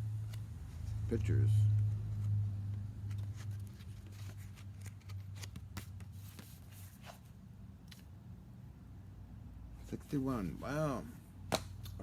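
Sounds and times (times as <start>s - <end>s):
steady low hum: 0.0s - 12.0s
paper pages rustling: 1.7s - 7.3s.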